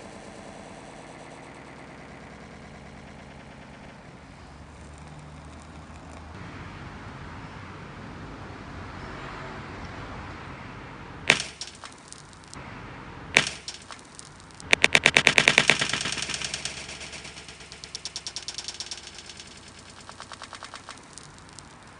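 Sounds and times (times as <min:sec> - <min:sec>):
rapid pops: 0:00.0 - 0:06.4, 0:11.3 - 0:12.6, 0:13.4 - 0:21.9
sharp bangs: 0:11.3 - 0:12.6, 0:13.3 - 0:21.9.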